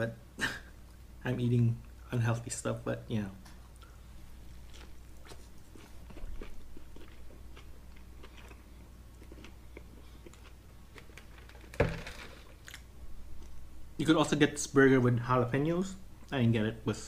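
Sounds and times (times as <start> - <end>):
person chewing: 3.6 - 13.6.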